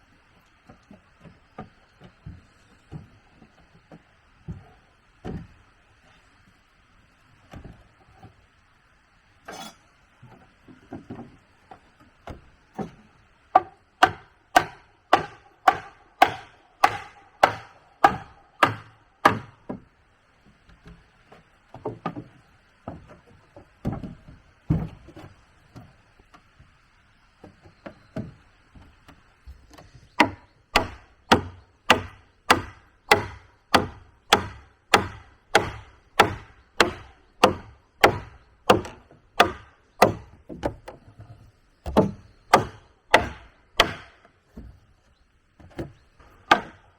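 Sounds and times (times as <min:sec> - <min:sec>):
chopping strikes into wood: 0:12.8 - 0:19.8, 0:30.2 - 0:40.8, 0:41.9 - 0:44.7, 0:46.4 - 0:46.8.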